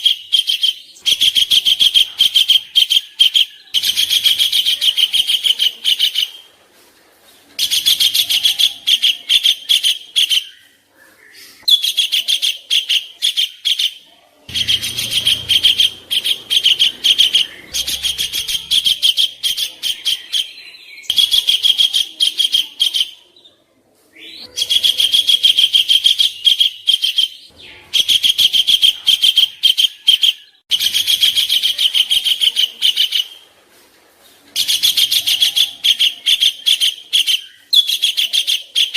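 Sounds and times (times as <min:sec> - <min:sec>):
songbird rattling chatter: 0:14.5 - 0:20.4.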